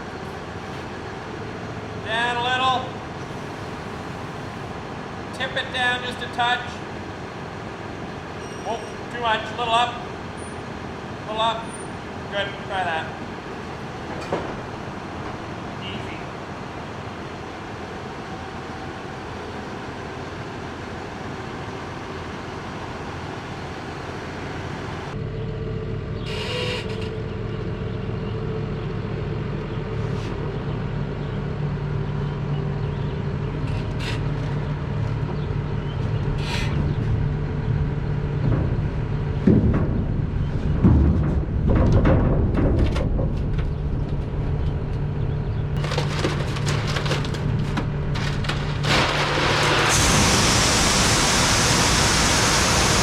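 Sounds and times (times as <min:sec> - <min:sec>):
tractor engine running: 0:09.1 - 0:53.0
knocks and thumps: 0:38.3 - 0:44.4.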